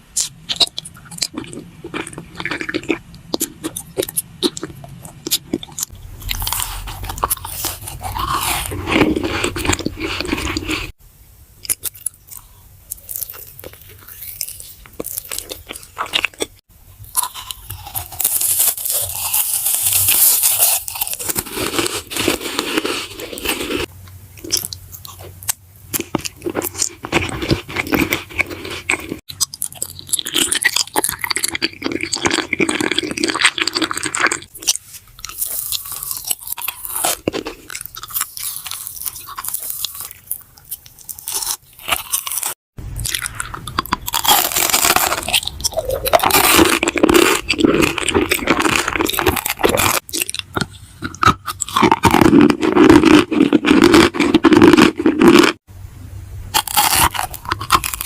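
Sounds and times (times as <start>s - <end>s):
crunching bites and chewing: 0.1s - 11.0s, 11.6s - 55.6s, 56.5s - 58.0s
crisp crackles and clicks: 11.7s - 55.6s, 56.6s - 58.0s.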